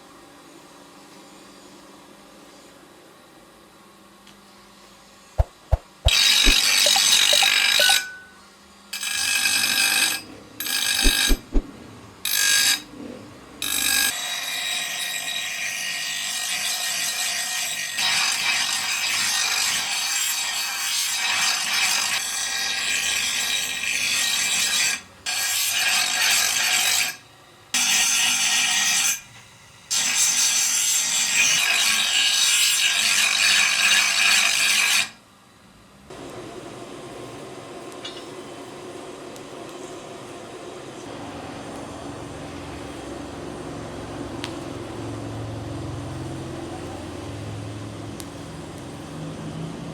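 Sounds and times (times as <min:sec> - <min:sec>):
tool rasping against steel blade: 0:05.4 - 0:08.2, 0:10.6 - 0:11.7.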